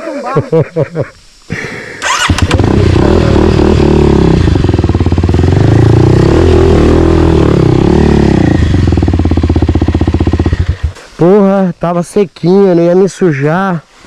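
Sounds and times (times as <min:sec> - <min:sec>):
dirt bike engine revving: 0:01.5 - 0:11.2.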